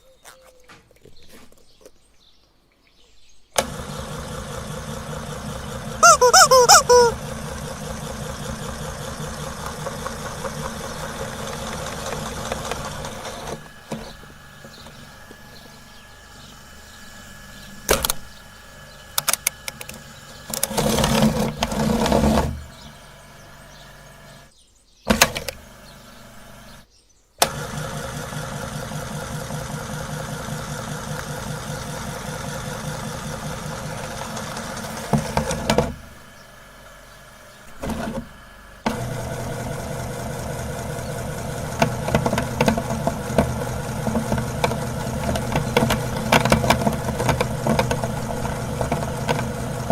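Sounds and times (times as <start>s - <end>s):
rattling bursts: 3.6s - 15.0s, 19.2s - 24.5s, 27.4s - 38.2s, 38.8s - 49.9s
meat grinder motor humming: 3.6s - 17.7s, 19.6s - 24.4s, 27.4s - 49.9s
grinder clattering: 7.7s - 14.9s, 38.9s - 49.9s.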